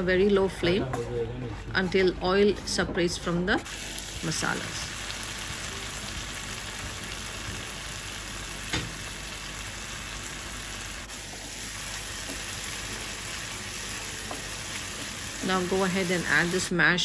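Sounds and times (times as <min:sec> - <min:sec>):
masala sizzling and bubbling in a pan: 0:03.6 - 0:17.0.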